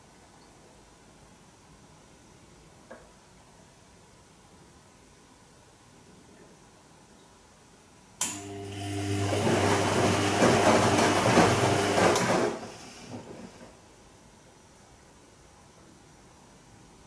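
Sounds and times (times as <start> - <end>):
washing machine drum turning: 8.3 - 13.6.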